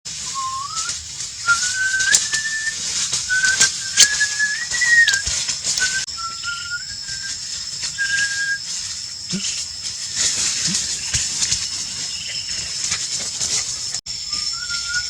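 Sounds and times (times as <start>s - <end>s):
crackles: 0.1s - 15.0s
steady high hiss: 0.1s - 15.0s
person whistling a tune: 0.2s - 9.6s, 14.2s - 15.0s.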